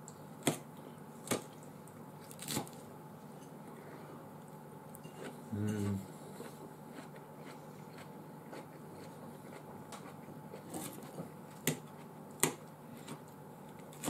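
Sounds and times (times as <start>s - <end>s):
person chewing: 5.0s - 13.3s.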